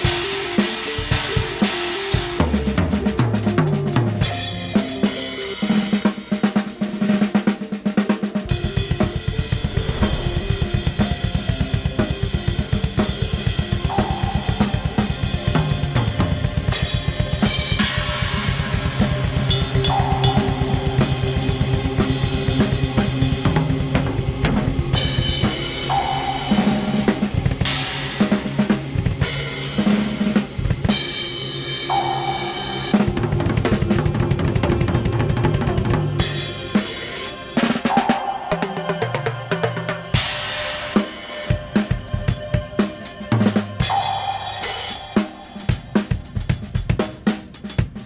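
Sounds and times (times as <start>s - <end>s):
acoustic drum kit playing: 0.0s - 37.0s, 40.9s - 48.0s
sustained low drone tones: 9.2s - 13.0s.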